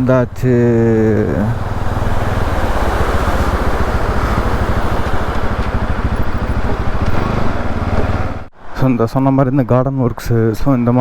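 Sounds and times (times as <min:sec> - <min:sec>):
motorcycle engine running: 0:00.0 - 0:08.5.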